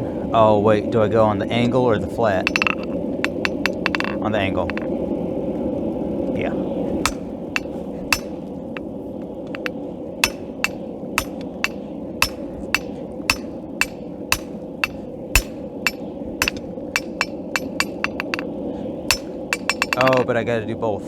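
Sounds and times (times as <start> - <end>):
hammer striking steel on anvil: 2.4 - 4.8, 7.1 - 18.5, 19.1 - 20.2.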